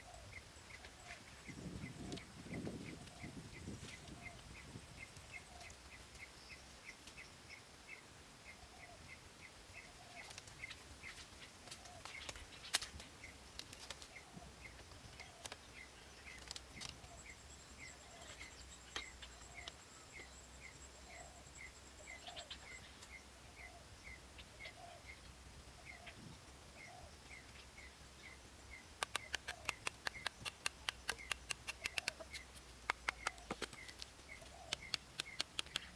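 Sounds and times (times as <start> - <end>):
scattered clicks: 29.0 - 34.1, 34.7 - 35.9.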